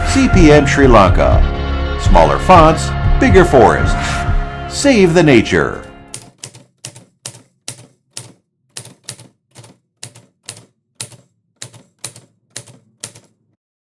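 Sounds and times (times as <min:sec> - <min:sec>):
typewriter keys clacking: 0:05.8 - 0:13.5.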